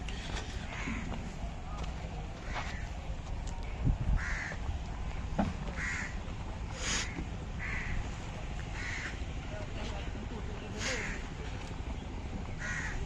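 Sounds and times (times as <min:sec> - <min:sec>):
steady low rumble: 0:00.0 - 0:13.0
crow cawing: 0:00.7 - 0:01.2, 0:02.4 - 0:02.8, 0:04.2 - 0:04.6, 0:05.7 - 0:06.2, 0:06.9 - 0:08.1, 0:08.7 - 0:09.2, 0:12.6 - 0:13.0.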